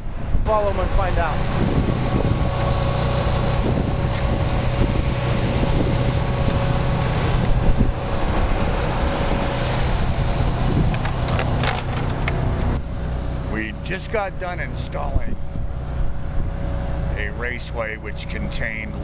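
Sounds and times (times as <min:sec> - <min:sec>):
wind buffeting microphone: 0:00.0 - 0:13.2, 0:13.9 - 0:17.6
vehicle engine humming: 0:00.0 - 0:19.0.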